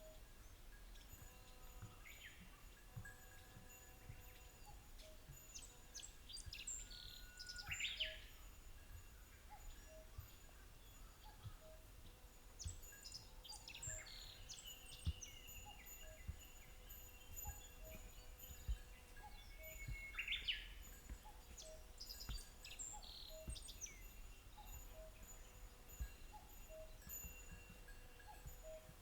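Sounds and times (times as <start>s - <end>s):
birds chirping and singing: 12.6s - 29.0s
faint low thumps: 14.9s - 29.0s.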